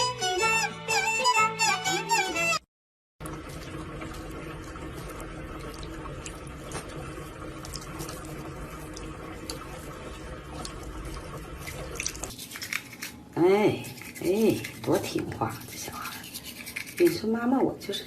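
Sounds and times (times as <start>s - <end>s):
water running: 3.2s - 18.0s.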